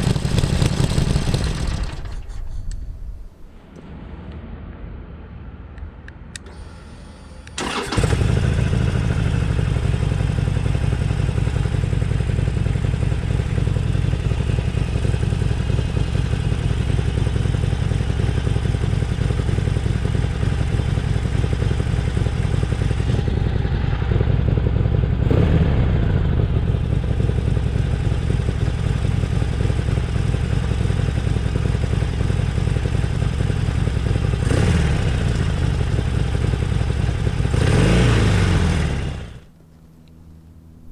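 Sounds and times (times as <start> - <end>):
motorcycle engine idling: 0.0 - 3.8, 7.6 - 40.9
motorcycle throttle blip: 0.1 - 3.8.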